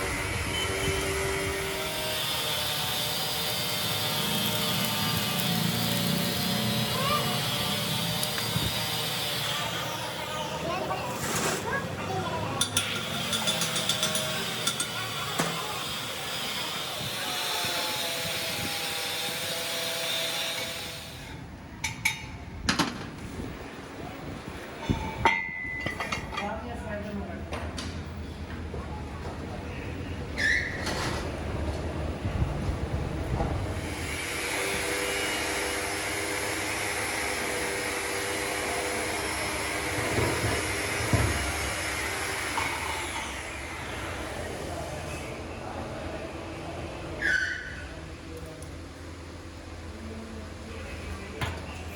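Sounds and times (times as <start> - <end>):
machine hiss with humming tones: 0.0 - 9.5
workshop machinery whirring: 0.0 - 21.7, 30.6 - 47.2.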